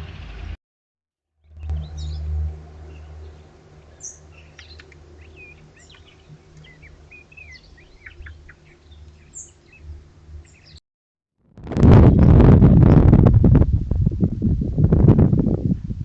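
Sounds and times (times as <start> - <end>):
small birds chirping: 2.9 - 10.8
steady low rumble: 11.5 - 16.0.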